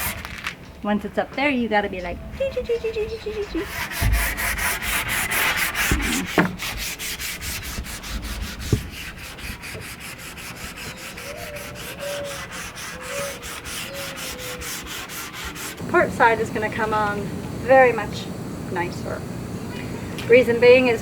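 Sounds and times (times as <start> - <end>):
sanding wood: 0.0 - 0.4, 3.2 - 21.0.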